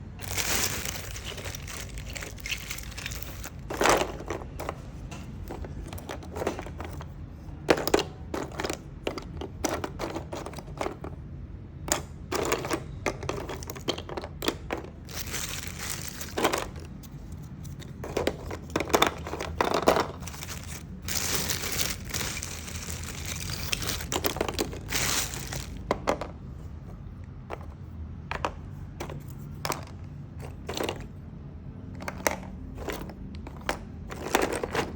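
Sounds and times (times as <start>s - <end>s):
crinkling rustle: 0.2s - 7.0s, 15.0s - 17.9s, 19.7s - 25.9s
wood pieces clicking and knocking: 0.2s - 11.1s, 11.9s - 26.3s.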